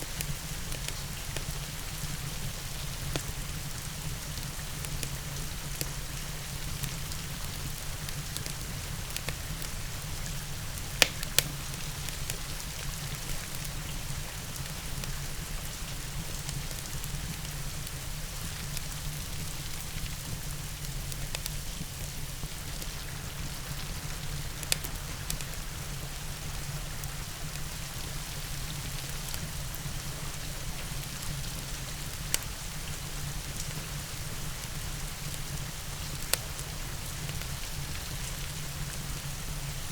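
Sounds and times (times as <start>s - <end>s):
rain hiss: 0.0s - 39.9s
wood fire crackling: 0.1s - 39.2s
fire popping: 10.3s - 13.6s, 24.1s - 25.6s.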